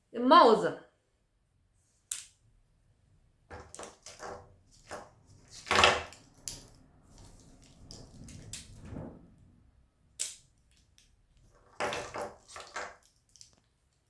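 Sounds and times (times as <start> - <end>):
rustling: 3.5 - 14.0.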